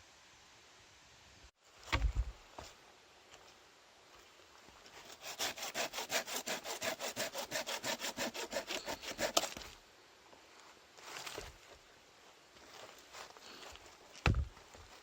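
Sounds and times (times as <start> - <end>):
hand saw cutting wood: 5.0 - 9.6.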